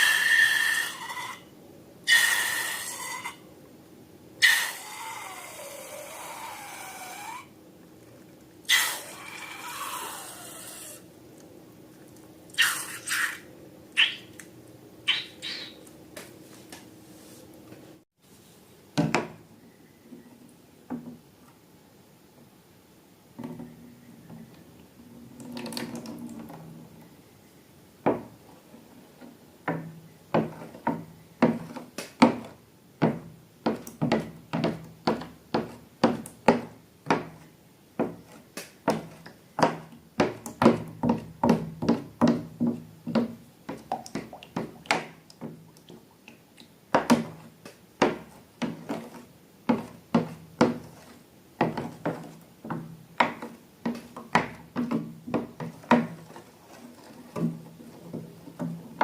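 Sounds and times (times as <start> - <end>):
rustle: 16.3 - 18.9.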